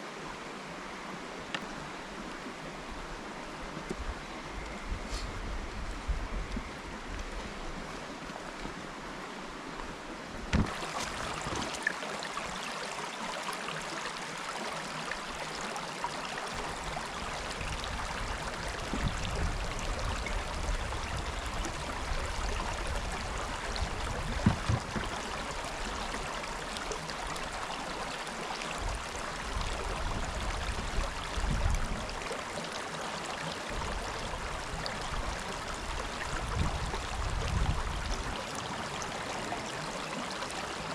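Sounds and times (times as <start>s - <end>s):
wind rumble on microphone: 3.7s - 8.9s, 16.6s - 26.0s, 28.8s - 32.2s, 33.7s - 38.4s
river water rushing: 7.5s - 40.9s.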